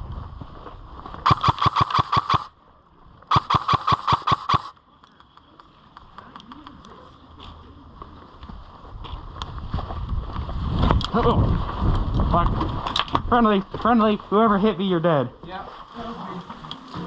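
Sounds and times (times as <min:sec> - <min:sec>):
airsoft rifle firing bursts: 0:01.3 - 0:02.5, 0:03.3 - 0:04.7.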